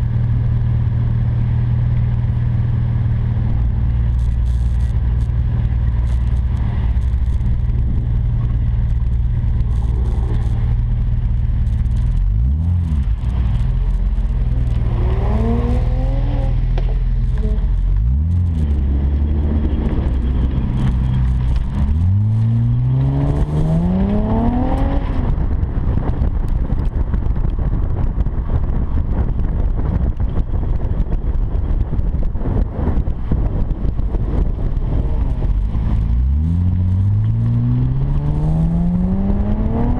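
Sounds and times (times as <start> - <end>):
car engine revving: 2.4 - 25.6, 35.0 - 39.9.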